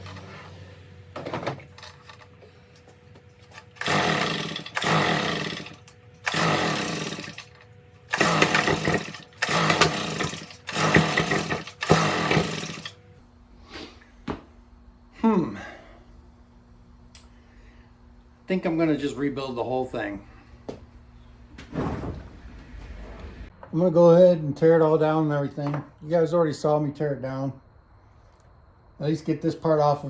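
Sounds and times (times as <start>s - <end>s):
leaf blower recoil starter pulls: 0.0s - 13.1s.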